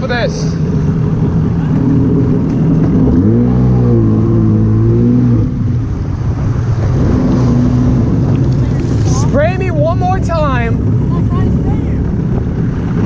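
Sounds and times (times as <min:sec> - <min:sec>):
rush of wind and water: 0:00.0 - 0:13.0
jet ski engine revving: 0:00.6 - 0:13.0.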